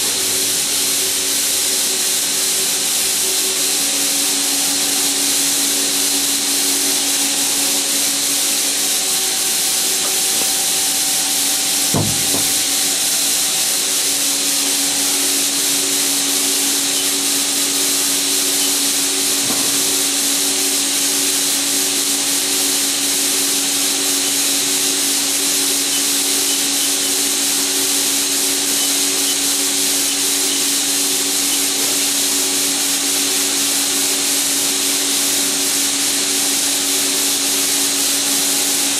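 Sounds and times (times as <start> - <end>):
lathe hissing and humming: 0.0 - 38.9
single knock: 11.9 - 12.7.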